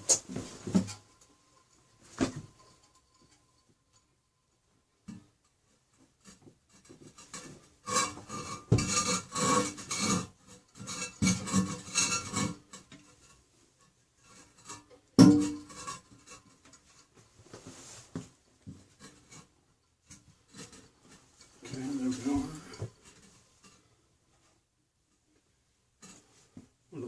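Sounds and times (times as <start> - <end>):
porcelain toilet scraping on floor: 7.2 - 12.7.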